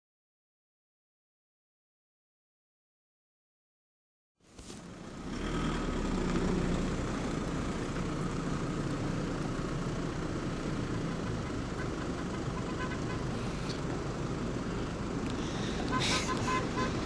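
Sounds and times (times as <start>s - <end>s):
engine idling: 4.8s - 17.0s.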